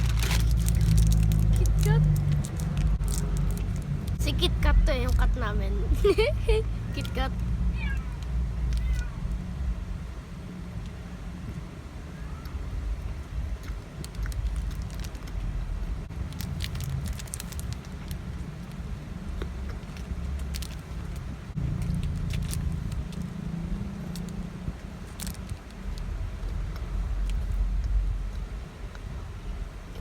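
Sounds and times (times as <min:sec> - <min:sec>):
crunchy wafer being chewed: 0:00.0 - 0:04.2, 0:12.4 - 0:15.6, 0:16.2 - 0:29.1
steady low rumble: 0:00.0 - 0:30.0.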